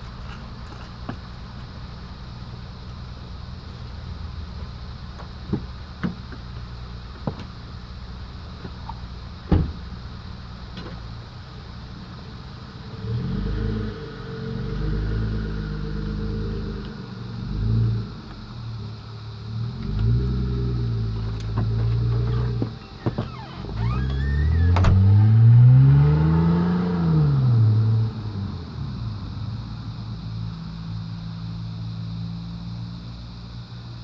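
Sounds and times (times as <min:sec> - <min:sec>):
car engine revving: 0:12.6 - 0:33.0.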